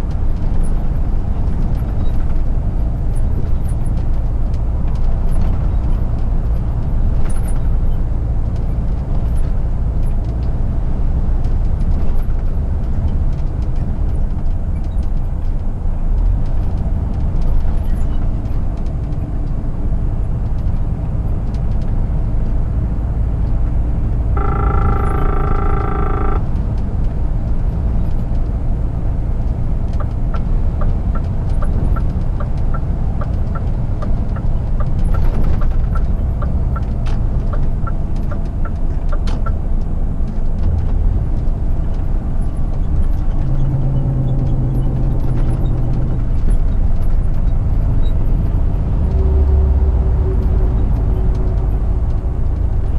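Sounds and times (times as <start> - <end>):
road noise: 0.0 - 52.9
truck diesel engine cruising: 0.0 - 52.9
turn signal ticking: 23.4 - 40.9
pitched tone: 24.3 - 26.7.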